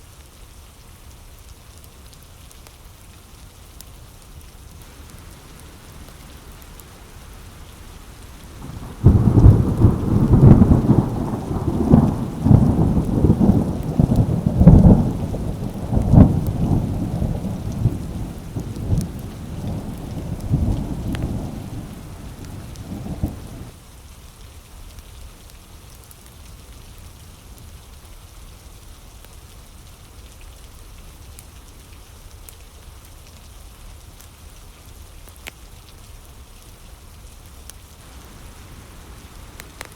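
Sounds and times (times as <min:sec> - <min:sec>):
steady rain: 0:00.0 - 0:39.9
crackling thunder roll: 0:04.9 - 0:23.7, 0:38.0 - 0:39.9.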